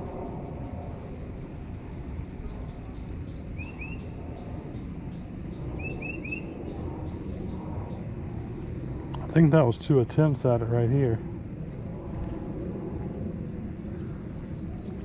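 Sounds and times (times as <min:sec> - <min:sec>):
low outdoor rumble: 0:00.0 - 0:15.0
wild birds chirping: 0:01.5 - 0:08.2, 0:13.3 - 0:15.0.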